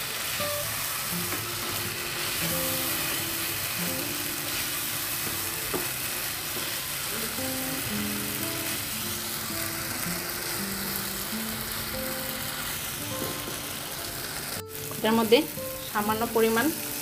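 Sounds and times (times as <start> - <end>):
fish sizzling in a pan: 0.0 - 17.0
soft background music: 0.1 - 17.0.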